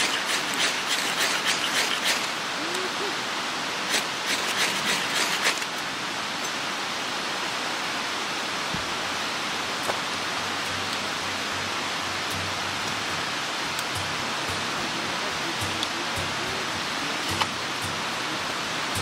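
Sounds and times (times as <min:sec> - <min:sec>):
mountain stream rushing: 0:00.0 - 0:19.0.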